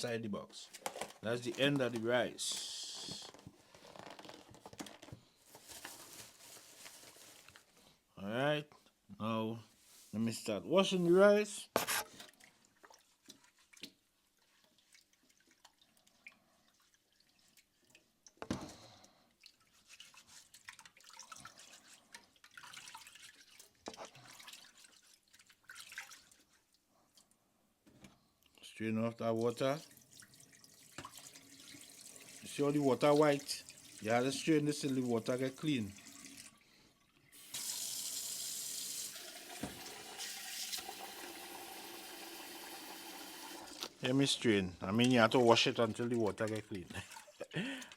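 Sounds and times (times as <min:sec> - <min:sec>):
water dripping: 0:12.2 - 0:27.4, 0:29.4 - 0:43.9, 0:45.1 - 0:47.9
water splashing rice rinsing: 0:19.4 - 0:26.8, 0:29.8 - 0:36.6
tap water running into a pot: 0:29.8 - 0:36.6, 0:37.3 - 0:44.0.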